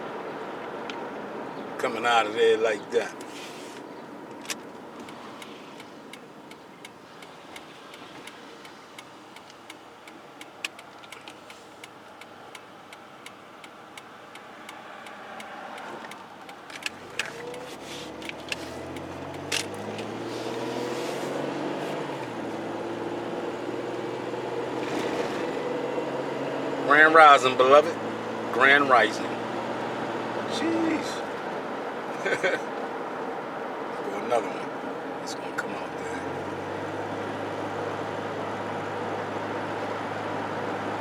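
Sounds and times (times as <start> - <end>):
car engine hum: 0.0 - 41.0
road noise: 0.0 - 41.0
sharp clicks: 4.3 - 20.6
faint ticks: 5.0 - 20.1.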